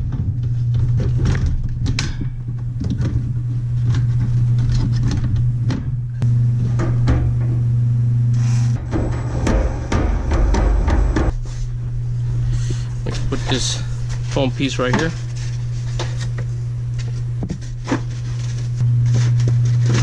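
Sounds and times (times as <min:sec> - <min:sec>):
knocks and clatter of parts: 0:00.0 - 0:06.0
air conditioner humming: 0:00.0 - 0:20.0
higher hum: 0:00.0 - 0:20.0.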